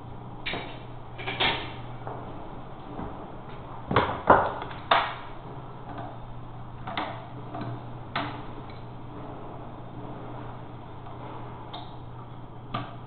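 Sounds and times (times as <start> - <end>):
steady low hum: 0.0 - 13.0
sharp knocks and clicks: 6.8 - 8.9, 12.7 - 13.0.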